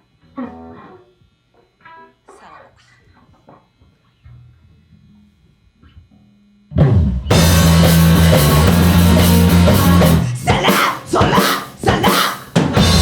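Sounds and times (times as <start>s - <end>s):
drum hits: 6.8s - 13.0s
punk rock band playing: 6.8s - 13.0s.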